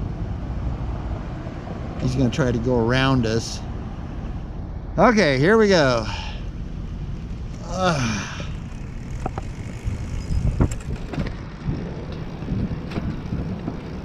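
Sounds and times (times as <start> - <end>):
road and wind rumble: 0.0 - 14.0
short falling vocal sound: 7.6 - 8.6.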